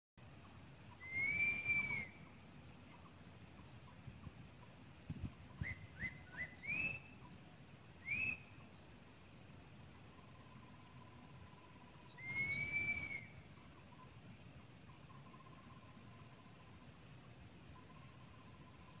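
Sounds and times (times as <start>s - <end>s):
bird whistling calls: 0.9s - 2.4s, 5.5s - 7.3s, 8.0s - 8.6s, 12.0s - 13.7s
low thuds of wind or handling: 5.0s - 5.7s.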